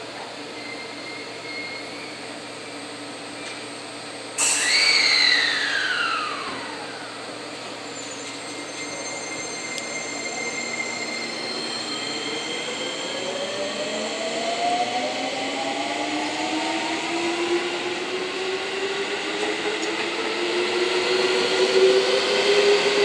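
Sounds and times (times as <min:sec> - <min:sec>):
loud falling squeal: 0:00.5 - 0:02.2, 0:04.4 - 0:13.8
train motor whine: 0:04.4 - 0:15.3.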